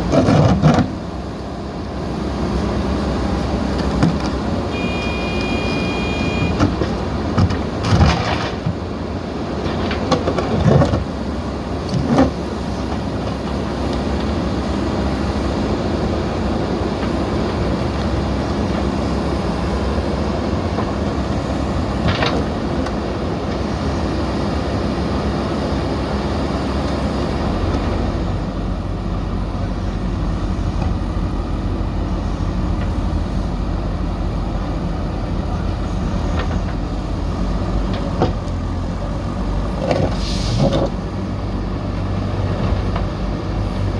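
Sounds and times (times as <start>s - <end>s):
diesel engine rumbling: 0.0s - 43.9s.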